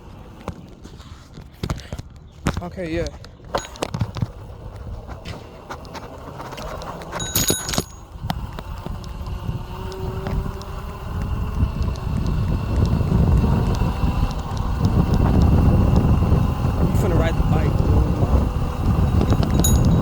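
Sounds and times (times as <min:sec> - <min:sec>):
bicycle bell ringing: 0:07.2 - 0:08.2, 0:19.3 - 0:20.0
low rumbling noise: 0:07.3 - 0:20.0.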